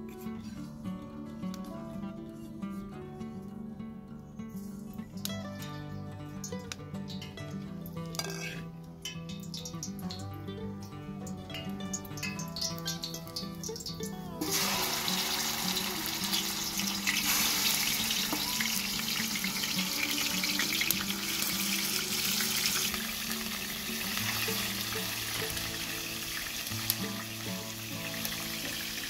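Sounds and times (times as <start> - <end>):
background music: 0.0 - 29.0
oil sizzling in a frying pan: 8.1 - 10.6, 11.5 - 29.0.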